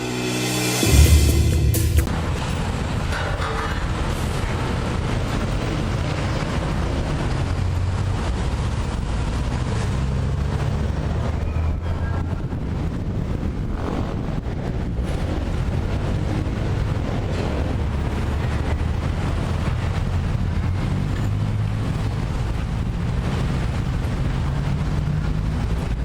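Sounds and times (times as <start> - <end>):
digger diesel engine rumbling: 0.0 - 26.0
wind noise on microphone: 2.1 - 26.0.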